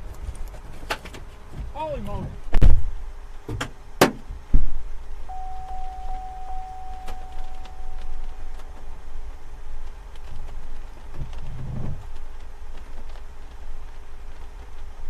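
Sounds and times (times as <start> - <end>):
steady electronic tone: 5.3 - 9.4.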